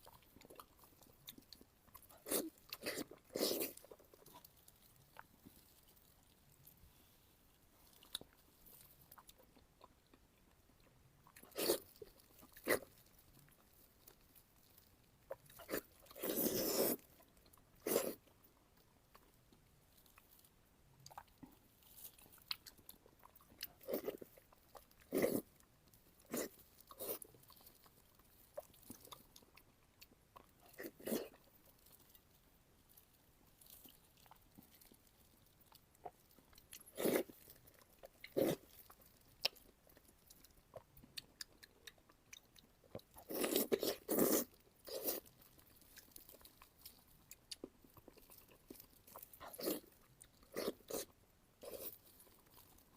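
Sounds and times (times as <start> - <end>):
person biting and chewing food: 36.0 - 52.9.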